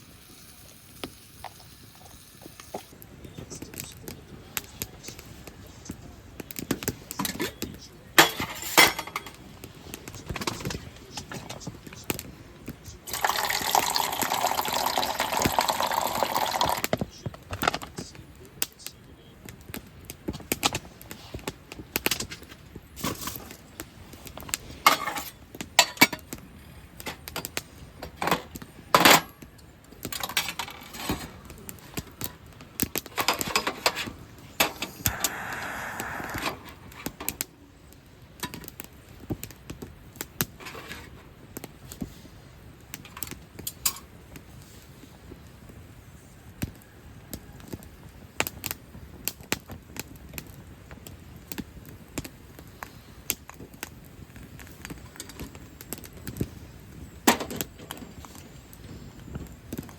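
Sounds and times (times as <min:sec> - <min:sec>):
cookware and utensils clinking: 0:07.1 - 0:09.4, 0:13.1 - 0:16.8, 0:24.7 - 0:26.3
liquid pouring: 0:13.1 - 0:16.8.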